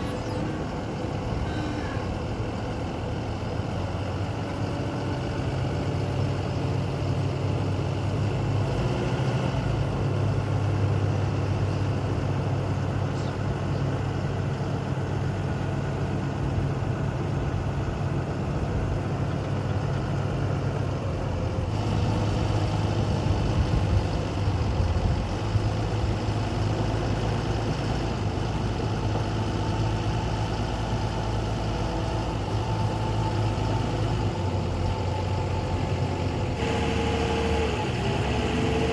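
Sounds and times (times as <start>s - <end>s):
diesel forklift engine idling: 0.0s - 38.9s.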